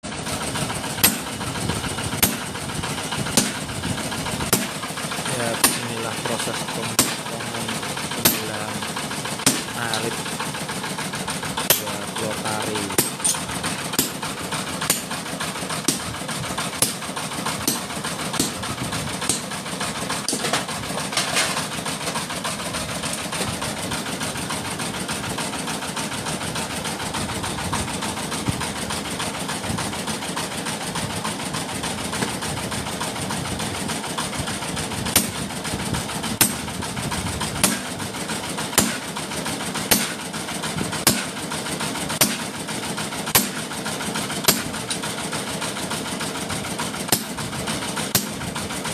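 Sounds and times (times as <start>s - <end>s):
engine-like mechanical hum: 0.0s - 48.9s
hammer striking metal: 1.0s - 1.4s, 2.2s - 2.6s, 3.4s - 3.6s, 4.5s - 10.8s, 11.6s - 19.6s, 20.2s - 22.2s, 35.1s - 35.4s, 36.4s - 36.7s, 37.6s - 37.9s, 38.7s - 39.2s, 39.8s - 40.3s, 41.0s - 41.4s, 42.2s - 42.6s, 43.3s - 45.0s, 47.1s - 47.4s, 48.0s - 48.4s.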